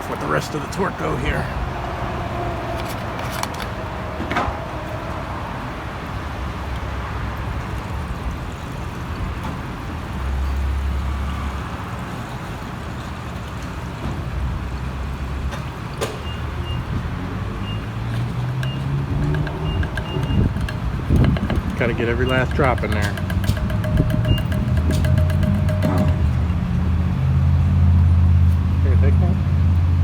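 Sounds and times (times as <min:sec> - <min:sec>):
low rumble of motor vehicles: 0:00.0 - 0:30.0
sharp clicks and knocks: 0:18.0 - 0:27.1.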